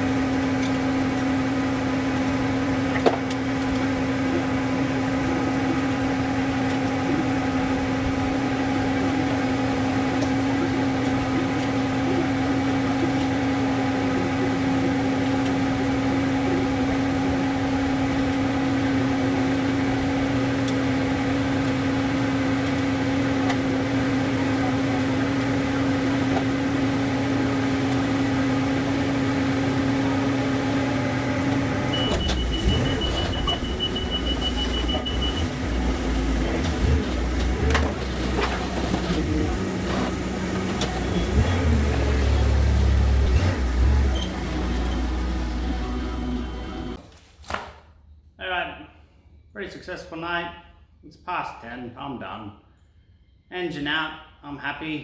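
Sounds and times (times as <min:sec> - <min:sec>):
machine hum: 0:11.6 - 0:47.0.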